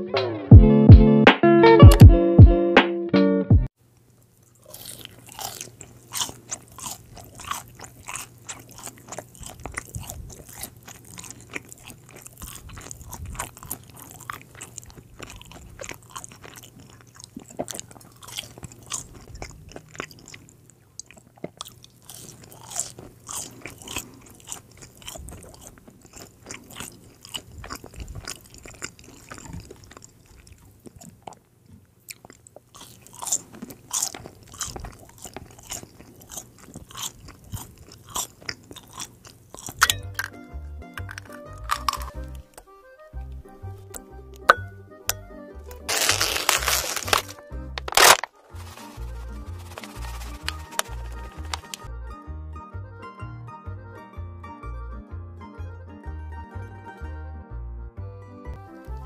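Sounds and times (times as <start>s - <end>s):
crunching french fries: 4.0s - 42.7s, 45.1s - 51.9s.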